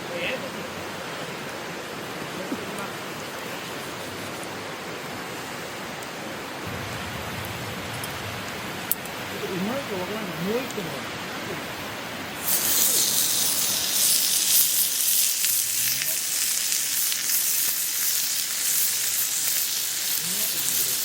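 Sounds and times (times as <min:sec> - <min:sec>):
meat sizzling in a pan: 0:12.4 - 0:21.0.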